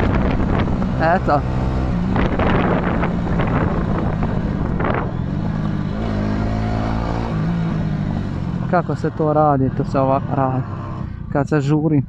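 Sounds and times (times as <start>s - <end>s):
wind rush: 0.0s - 8.6s
motorcycle engine at speed: 0.0s - 11.4s.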